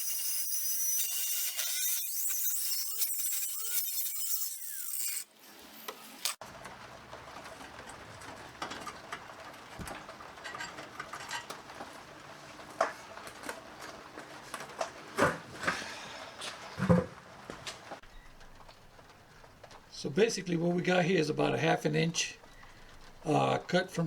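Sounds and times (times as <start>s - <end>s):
power tool cutting steel tube: 0.0s - 6.4s.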